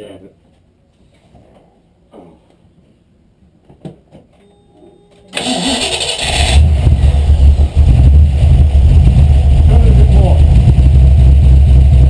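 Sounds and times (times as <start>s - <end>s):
starter motor cranking: 5.4s - 6.7s
engine running loud and steady: 6.2s - 12.0s.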